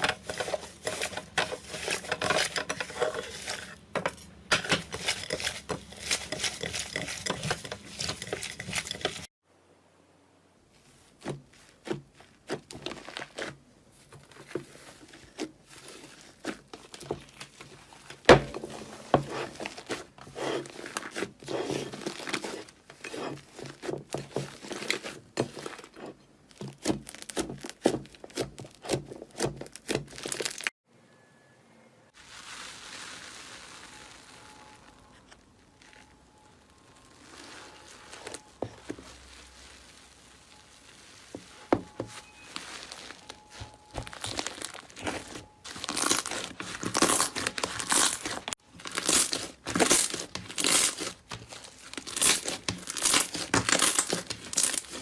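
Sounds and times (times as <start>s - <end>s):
slime crackling and popping: 26.6s - 30.7s, 32.2s - 41.4s, 42.6s - 55.0s.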